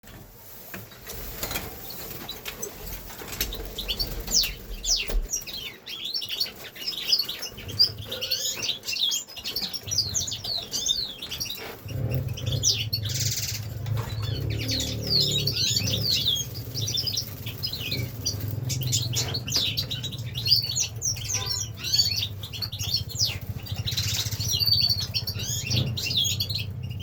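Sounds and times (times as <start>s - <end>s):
wings fluttering: 0.9s - 5.7s
finches chirping: 3.4s - 27.0s.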